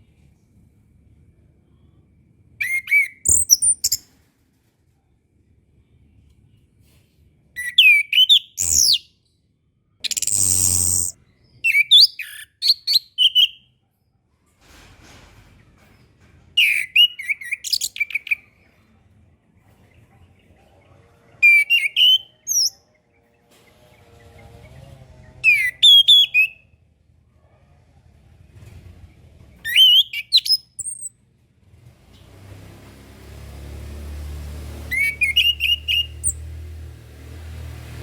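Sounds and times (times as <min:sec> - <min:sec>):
faint low hum: 0:00.0 - 0:02.6
thrush whistled song: 0:02.6 - 0:04.0, 0:07.6 - 0:09.1, 0:10.1 - 0:13.6, 0:21.4 - 0:22.8, 0:25.4 - 0:26.6, 0:29.7 - 0:31.1, 0:34.9 - 0:36.5.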